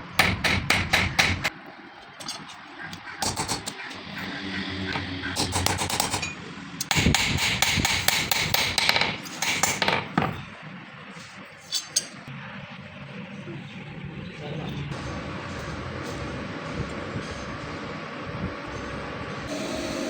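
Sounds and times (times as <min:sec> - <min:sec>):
hammer striking steel on anvil: 0:00.2 - 0:01.5, 0:05.4 - 0:10.0.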